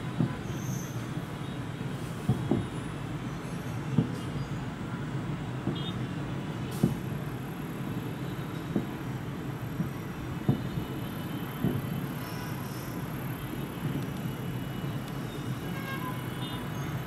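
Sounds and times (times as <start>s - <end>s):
distant fireworks booming: 2.2s - 2.7s, 6.7s - 7.4s, 8.0s - 14.3s.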